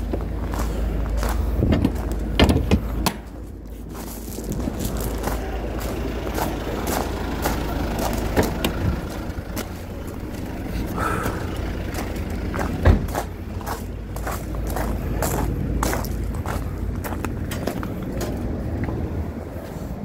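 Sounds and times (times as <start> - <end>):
vehicle engine rumbling: 0.0 - 20.0
knocks and clicks: 1.7 - 3.2
loud thud: 12.8 - 13.1.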